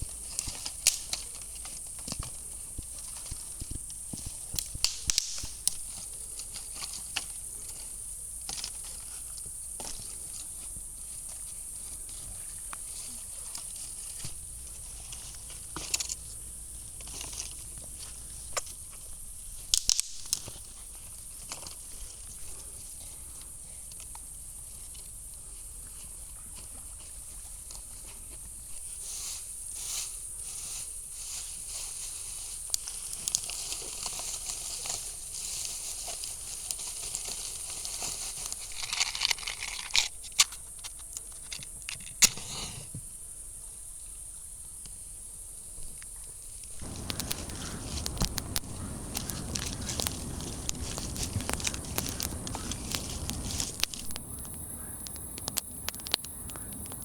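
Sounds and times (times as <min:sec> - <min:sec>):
rustling handling noise: 0:26.6 - 0:41.8, 0:46.7 - 0:57.0
high-pitched hiss: 0:46.4 - 0:57.0
clicks: 0:46.8 - 0:57.0.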